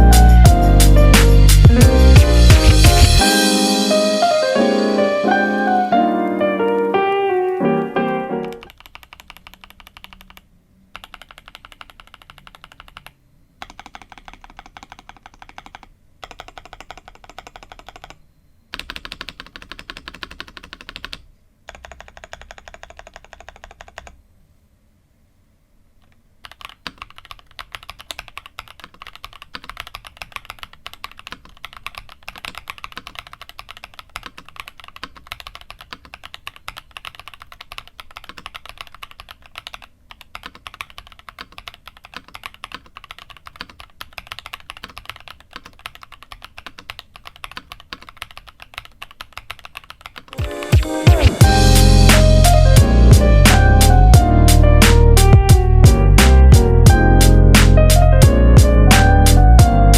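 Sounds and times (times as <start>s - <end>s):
mechanical keyboard typing: 8.4s - 24.2s, 26.0s - 51.4s.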